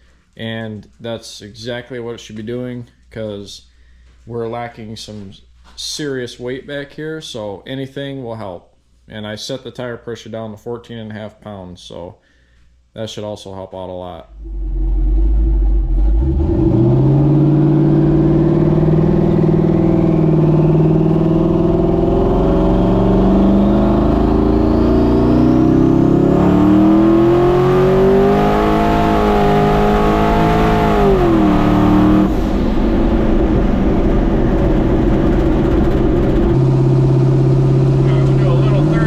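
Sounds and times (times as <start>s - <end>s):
engine revving high: 14.3s - 39.0s.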